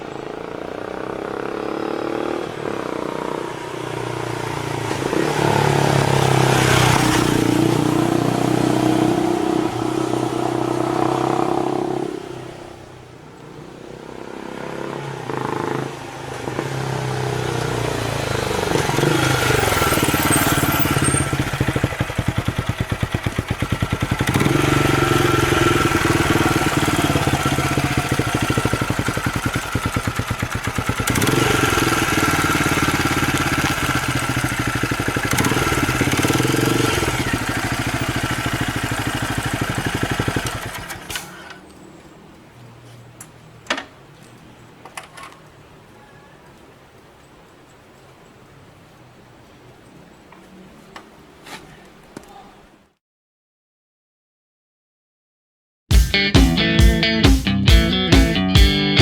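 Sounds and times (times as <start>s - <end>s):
motorcycle engine revving: 0.0s - 45.7s.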